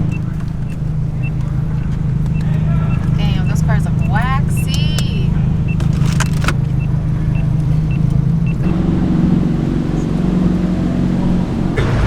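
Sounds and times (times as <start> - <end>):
faint regular ticking: 0.0 - 8.9
car engine running at low speed: 0.0 - 12.0.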